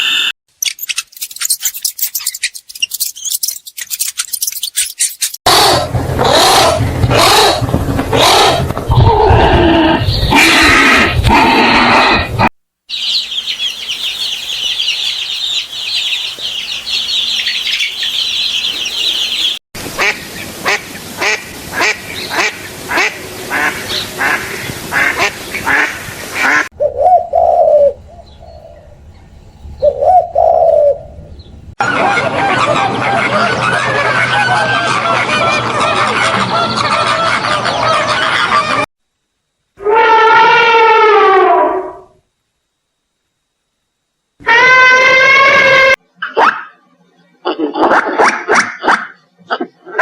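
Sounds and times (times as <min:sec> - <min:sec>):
birds chirping: 0:12.9 - 0:19.6
short bird calls: 0:12.9 - 0:19.6
loud low fowl calls: 0:12.9 - 0:26.7.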